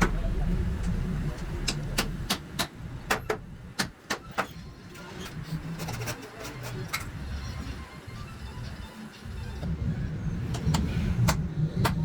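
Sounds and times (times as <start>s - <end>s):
low rumble: 0.0s - 3.7s.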